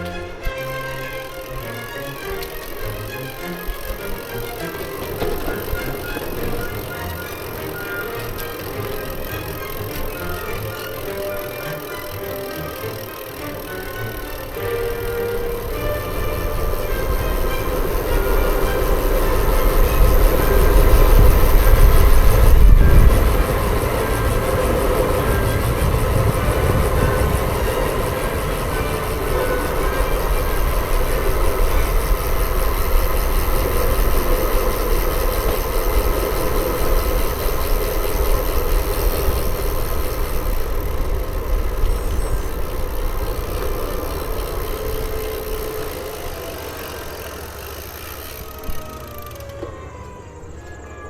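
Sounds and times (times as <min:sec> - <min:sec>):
bicycle road noise: 0:00.0 - 0:51.0
wind buffeting microphone: 0:14.7 - 0:46.9.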